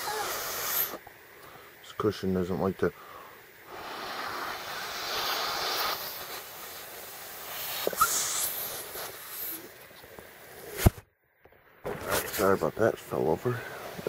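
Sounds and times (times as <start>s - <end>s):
person blowing into whoopee cushion: 0.0s - 1.0s, 3.7s - 9.7s.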